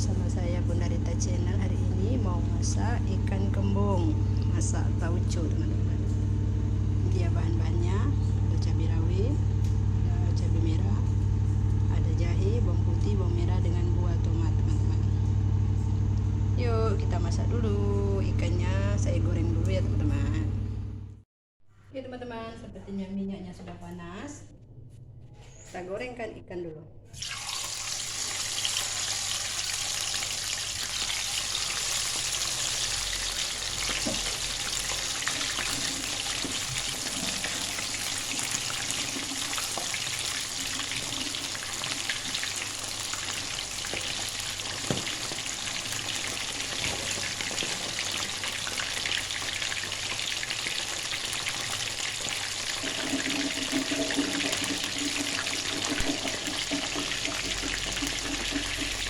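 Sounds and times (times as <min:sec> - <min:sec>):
fish sizzling in hot oil: 0:27.2 - 0:59.0.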